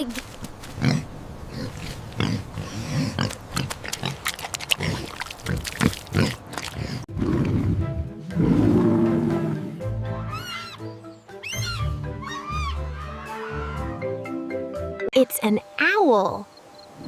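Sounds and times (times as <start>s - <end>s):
pig grunting and oinking: 0.8s - 9.8s
background music: 7.1s - 16.5s.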